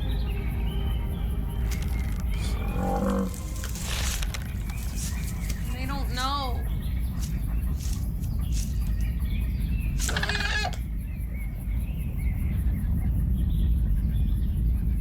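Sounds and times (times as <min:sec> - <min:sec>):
deep steady rumble: 0:00.0 - 0:10.0
faint bird chirps: 0:00.0 - 0:12.4
short animal call: 0:10.0 - 0:10.8.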